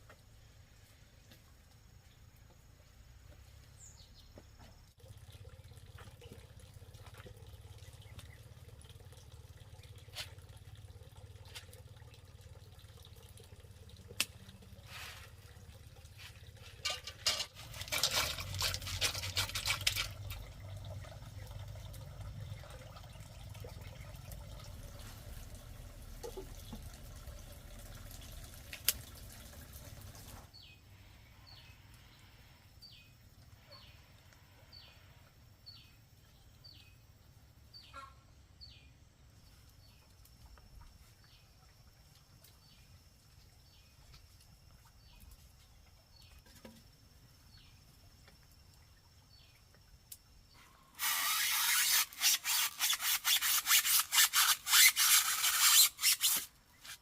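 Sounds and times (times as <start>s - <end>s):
water trickling and splashing: 3.2s - 30.7s, 39.3s - 57.0s.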